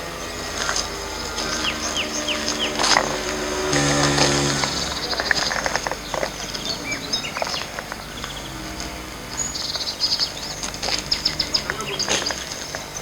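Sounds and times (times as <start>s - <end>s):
low hum: 0.0s - 12.1s
bird chirps: 0.0s - 13.0s
high insect drone: 0.0s - 13.0s
scattered clicks: 0.5s - 9.0s, 9.7s - 13.0s.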